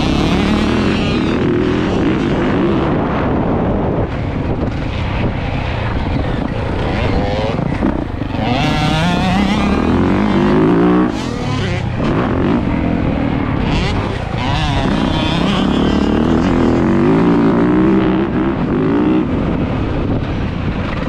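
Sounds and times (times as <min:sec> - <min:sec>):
dirt bike engine revving: 0:00.0 - 0:19.8.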